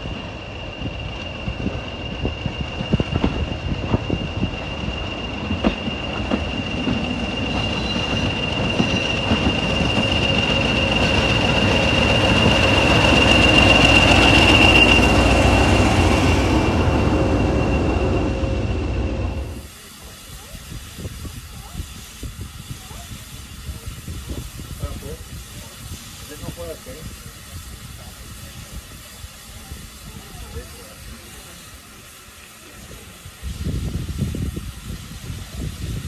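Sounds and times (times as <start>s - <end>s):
high wheel squeal: 0.0s - 19.6s
diesel train passing: 0.0s - 20.9s.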